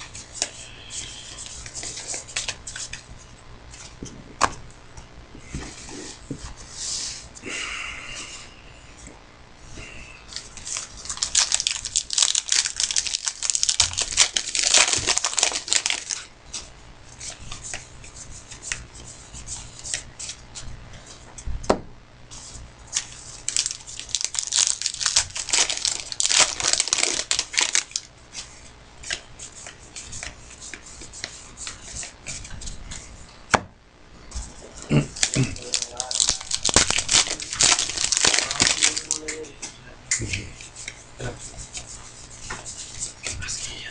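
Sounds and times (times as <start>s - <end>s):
card pack wrapping tearing: 10.4s - 16.3s, 22.9s - 28.1s, 35.2s - 39.4s.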